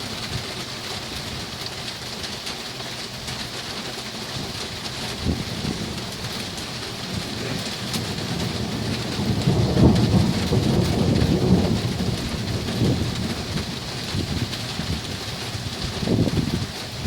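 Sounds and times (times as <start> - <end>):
heavy rain falling: 0.0 - 17.0
thunder rolling: 5.0 - 17.0.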